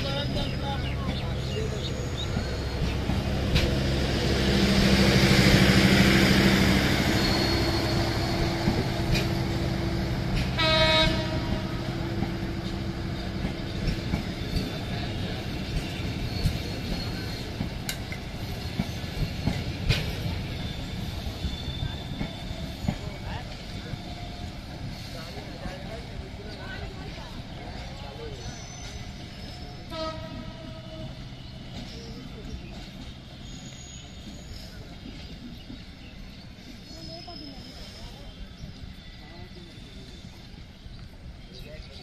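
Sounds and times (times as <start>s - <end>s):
diesel locomotive engine: 0.0s - 42.0s
train rumbling by: 0.0s - 42.0s
train horn blast: 10.5s - 12.0s, 29.8s - 31.3s.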